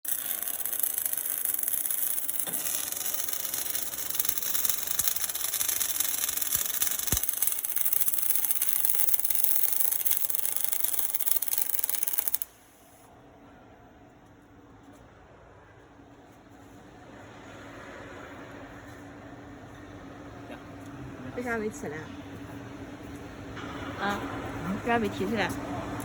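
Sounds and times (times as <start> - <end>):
welding arc hissing and crackling: 0.0 - 13.0
faint machine hum: 0.1 - 26.0.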